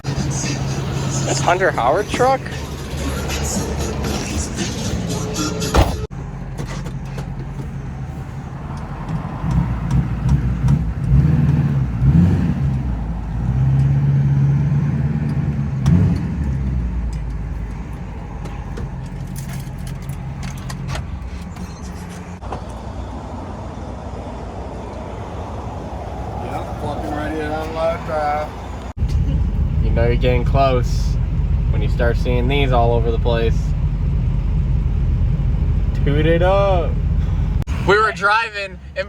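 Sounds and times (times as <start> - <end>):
large vehicle engine revving: 0.0 - 5.9, 8.1 - 20.1.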